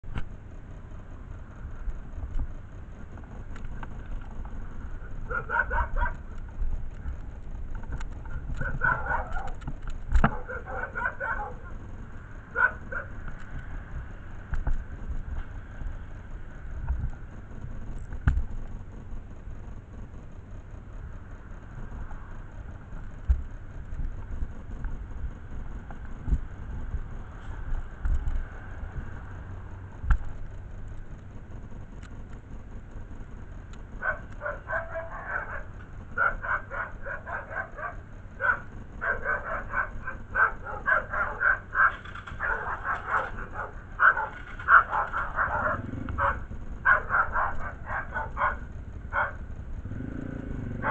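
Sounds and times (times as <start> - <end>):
dog barking rapidly: 5.3 - 6.3, 8.6 - 9.6, 10.2 - 11.8, 12.5 - 13.2, 34.0 - 49.4.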